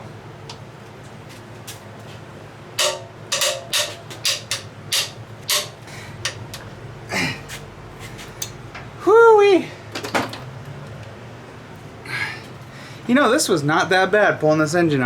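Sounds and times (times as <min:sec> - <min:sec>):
metal tools clanking: 0:02.8 - 0:06.7.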